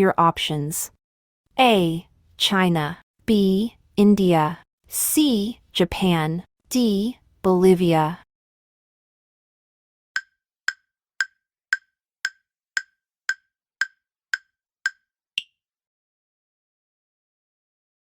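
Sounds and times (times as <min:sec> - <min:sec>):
countdown timer ticks: 0:10.2 - 0:15.5.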